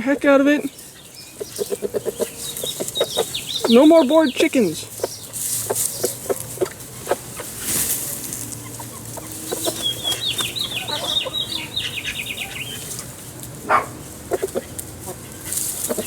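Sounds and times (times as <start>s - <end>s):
chickens clucking and scratching: 0.0s - 16.0s.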